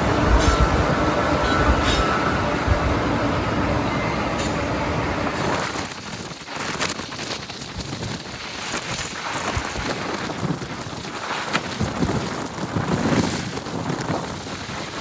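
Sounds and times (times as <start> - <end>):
freight train rumbling by: 0.0 - 6.1
wind buffeting microphone: 0.0 - 15.0.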